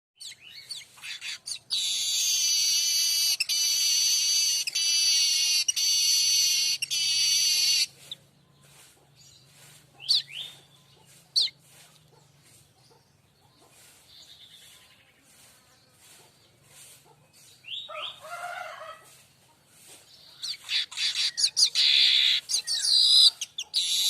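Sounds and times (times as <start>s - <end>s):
bird singing buzzing song: 0.2s - 13.4s, 20.0s - 24.0s
bird chirps: 0.2s - 18.2s, 20.1s - 24.0s.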